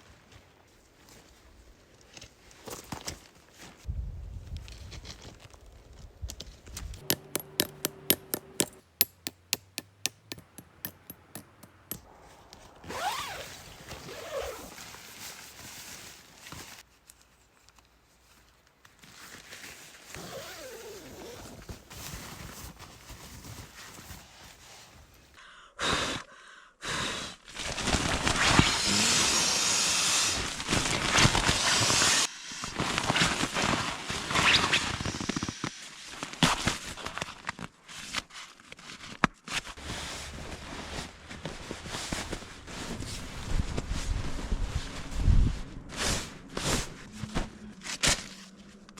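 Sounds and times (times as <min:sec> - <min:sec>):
sharp clicks: 0:07.0 - 0:12.0.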